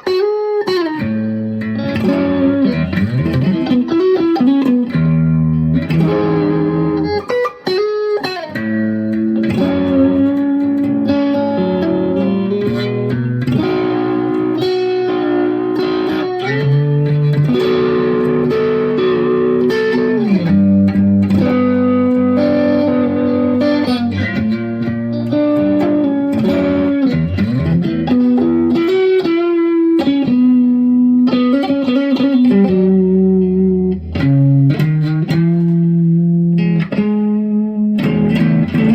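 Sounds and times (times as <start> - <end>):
electric guitar lead with bends: 0.0 - 38.9.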